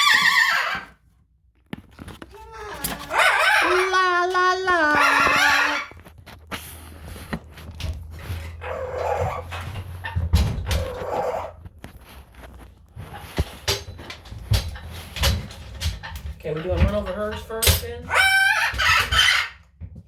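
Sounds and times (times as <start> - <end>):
rough animal calls: 2.3 - 6.1.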